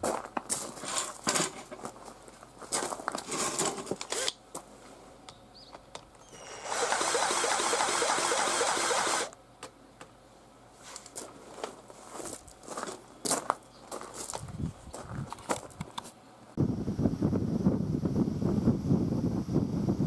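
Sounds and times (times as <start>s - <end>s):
engine starter whirring: 6.3s - 9.4s.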